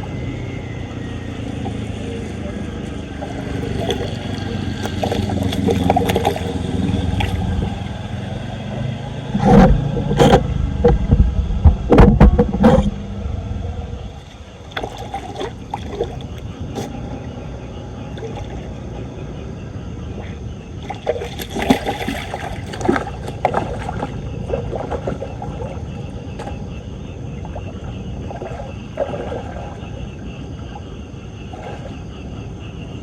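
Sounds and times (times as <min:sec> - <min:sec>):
floodwater churning and splashing: 0:00.0 - 0:19.2, 0:20.0 - 0:33.0.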